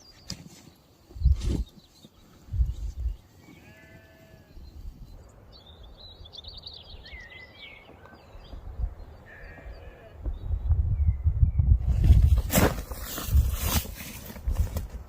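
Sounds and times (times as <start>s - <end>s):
songbird chirps and trills: 0.0s - 12.2s
farm animal bleating: 3.4s - 4.7s, 9.2s - 10.2s.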